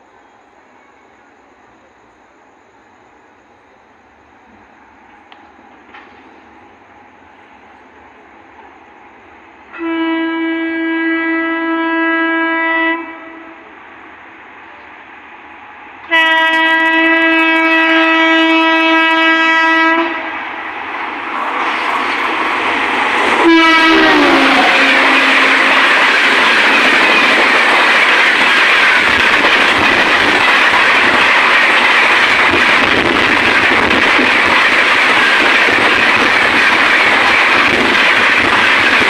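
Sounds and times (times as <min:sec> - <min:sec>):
train coaches rushing and clattering: 0:00.0 - 0:12.8, 0:13.6 - 0:39.0
locomotive horn blast: 0:09.7 - 0:13.6, 0:16.0 - 0:20.3, 0:23.4 - 0:25.9.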